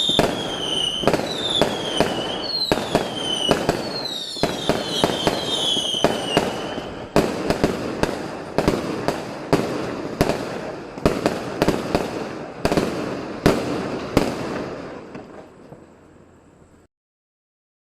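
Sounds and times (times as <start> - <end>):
fireworks bangs: 0.0 - 16.4
echoing rumble of explosions: 0.0 - 16.8
whistling fireworks: 0.0 - 16.9.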